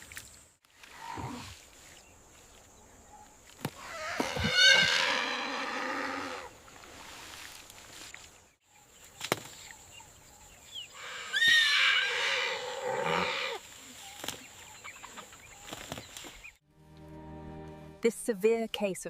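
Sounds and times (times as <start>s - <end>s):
elephant calling: 3.8s - 6.6s, 10.9s - 13.6s.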